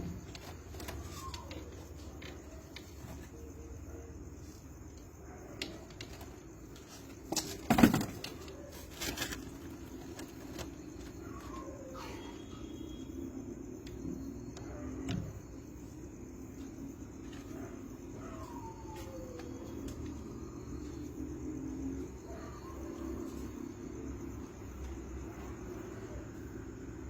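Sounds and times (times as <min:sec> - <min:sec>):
rustling: 0:00.0 - 0:03.4, 0:06.0 - 0:11.8.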